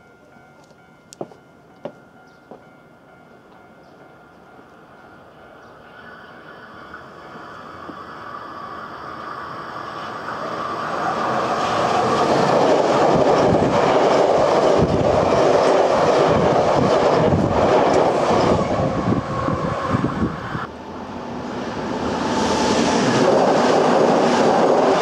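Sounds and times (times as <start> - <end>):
clacks at rail joints: 0.6 - 2.7
train wheels rumbling on rails: 6.8 - 25.0.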